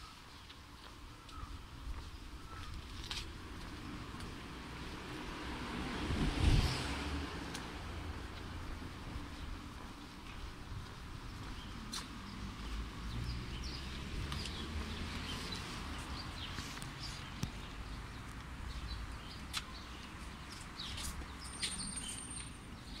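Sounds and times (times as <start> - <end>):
small birds chirping: 0.0 - 4.4, 9.2 - 23.0.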